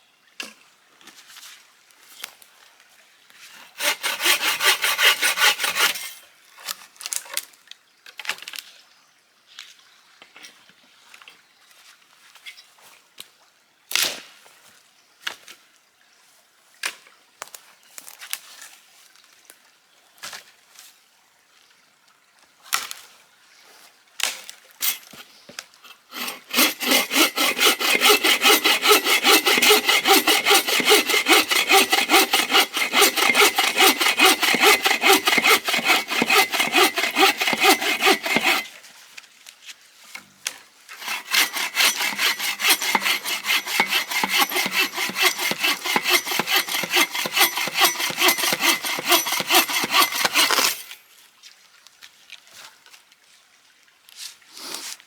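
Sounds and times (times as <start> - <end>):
hand saw cutting wood: 3.5 - 6.2, 24.8 - 38.8, 40.9 - 51.0.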